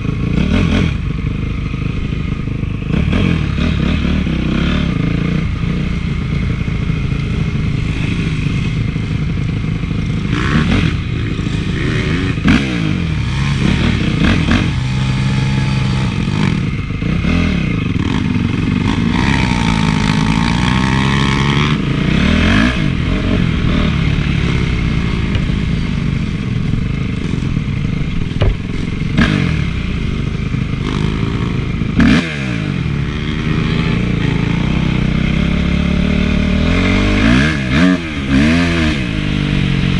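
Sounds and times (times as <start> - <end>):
motocross bike engine revving: 0.0 - 39.9
sharp knocks and clatter: 25.0 - 26.5, 27.2 - 30.0.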